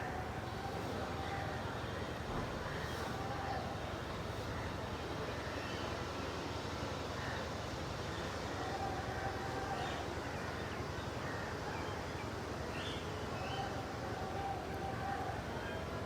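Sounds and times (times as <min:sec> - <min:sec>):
low held bird calls: 0:00.0 - 0:06.0.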